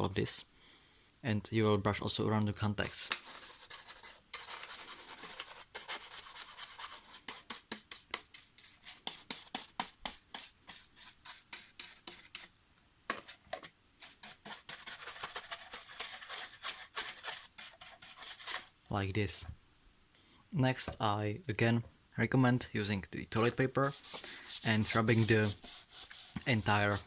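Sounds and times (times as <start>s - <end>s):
brush scrubbing plastic: 2.8s - 12.5s, 13.1s - 18.7s, 23.4s - 27.0s.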